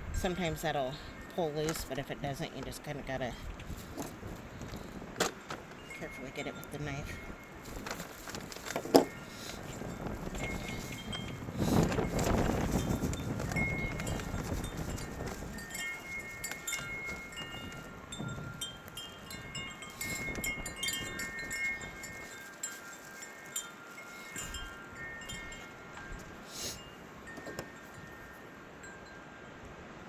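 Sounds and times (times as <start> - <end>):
gusty wind: 0.0 - 30.0
wind chimes tinkling: 0.0 - 30.0.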